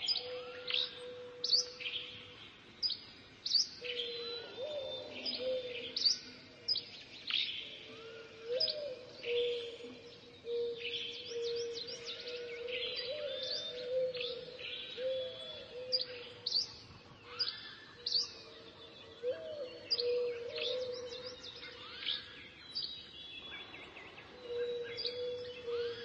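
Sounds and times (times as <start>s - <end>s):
birds chirping: 8.5s - 26.0s.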